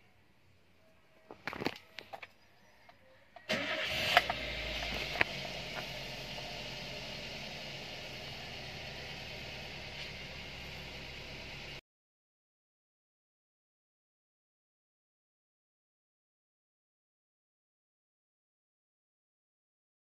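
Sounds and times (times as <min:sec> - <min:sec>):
car engine cranking and idling: 0:03.4 - 0:11.8
ignition clicks: 0:03.5 - 0:07.4.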